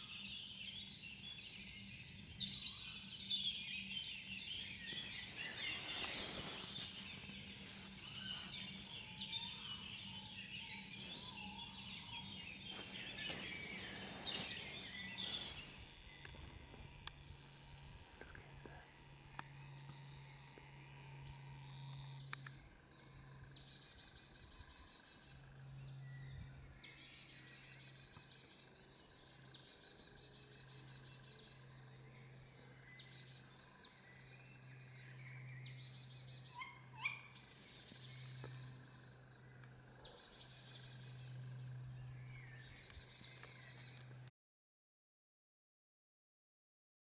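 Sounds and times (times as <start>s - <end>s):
young owls begging calls: 10.9s - 22.4s, 35.4s - 39.0s.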